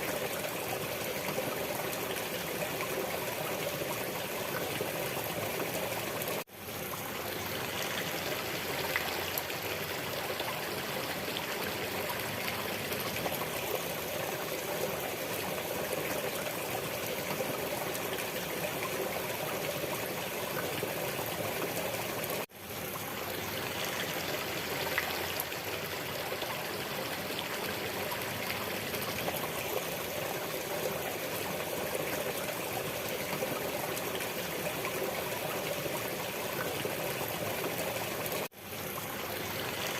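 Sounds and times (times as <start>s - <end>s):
trickling stream: 0.0s - 39.9s.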